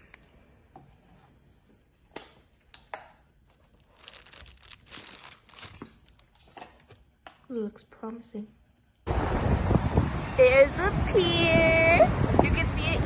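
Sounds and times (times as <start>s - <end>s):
packaging crinkling: 3.5s - 6.5s
packaging clicks: 3.7s - 6.3s.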